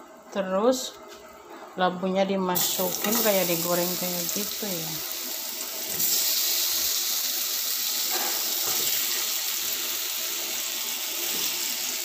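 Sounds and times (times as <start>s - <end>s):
pumpkin sizzling in hot oil: 2.6s - 12.0s.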